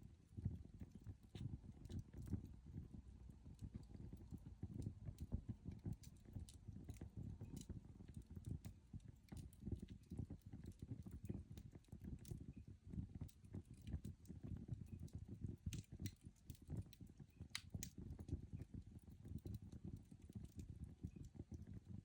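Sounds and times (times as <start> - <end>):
faint crackles and ticks: 0.0 - 22.0
coal fire rumbling: 0.1 - 21.9.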